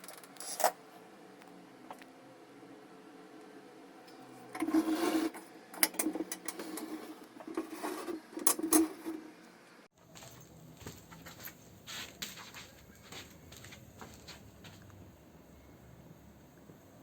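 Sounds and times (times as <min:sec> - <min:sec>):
hard parts rubbing and scraping: 0:00.0 - 0:00.8, 0:04.1 - 0:09.4.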